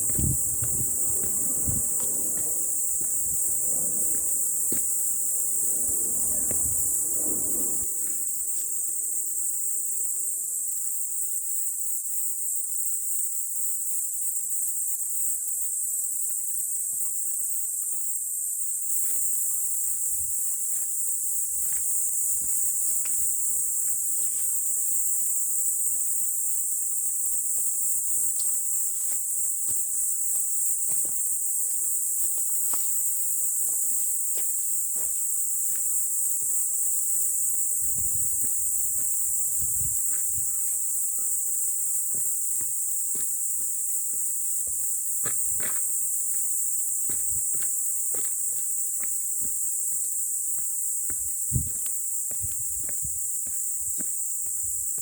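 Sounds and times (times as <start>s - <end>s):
high-pitched insect chorus: 0.0s - 55.0s.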